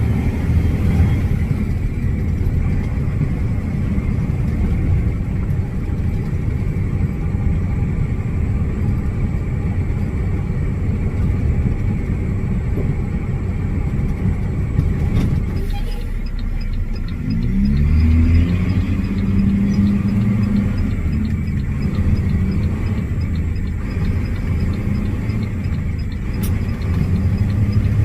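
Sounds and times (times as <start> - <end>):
truck engine and road rumble: 0.0 - 28.0.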